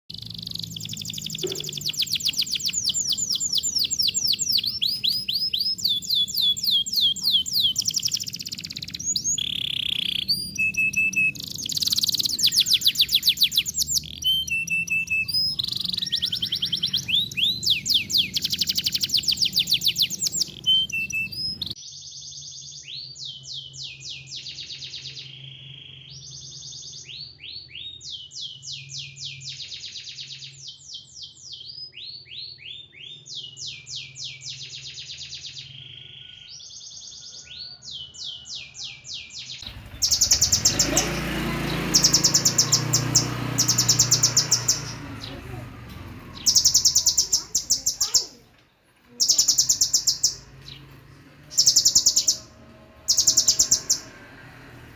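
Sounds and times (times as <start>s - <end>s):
recorded songbird trills: 0.1s - 48.5s, 49.1s - 54.9s.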